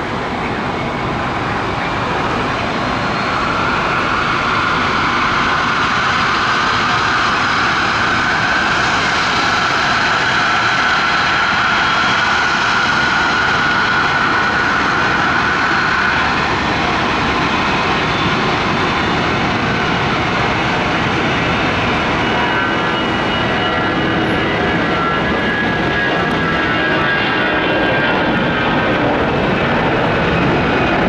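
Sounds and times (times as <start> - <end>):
jet engine high whine: 0.0 - 31.0
jet engines roaring: 0.0 - 31.0.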